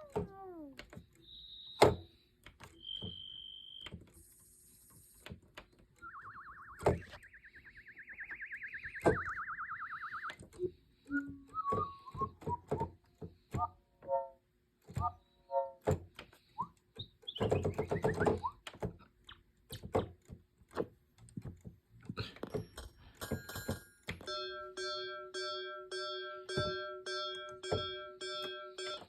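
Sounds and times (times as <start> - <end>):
held synthesizer tone: 6.0 - 10.4
synthesizer knocks and blips: 6.0 - 10.4.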